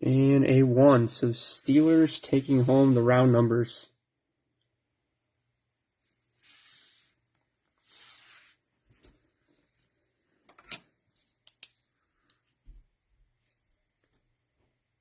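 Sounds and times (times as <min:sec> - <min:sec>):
cards sliding on a table: 0:06.3 - 0:09.9
small clicks and taps: 0:11.4 - 0:12.5.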